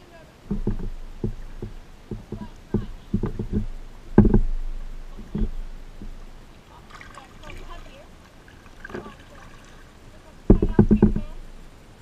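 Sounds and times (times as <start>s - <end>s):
kayak hollow knocks: 0.5s - 6.3s, 10.4s - 11.4s.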